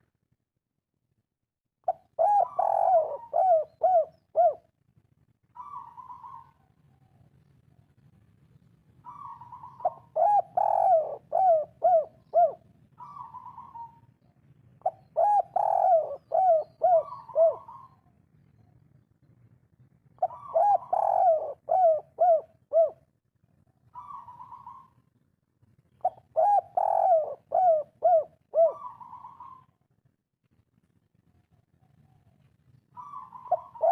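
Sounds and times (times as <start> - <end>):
dove cooing: 1.8 - 4.7, 5.6 - 6.7, 9.0 - 14.1, 14.8 - 18.1, 20.2 - 23.0, 23.9 - 25.0, 26.0 - 29.8, 32.9 - 33.9.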